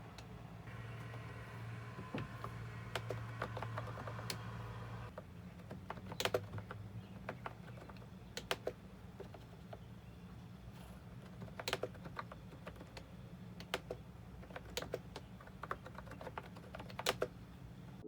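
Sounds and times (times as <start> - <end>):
low steady hum: 0.0 - 5.2
keyboard keystroke clicks: 11.4 - 17.3.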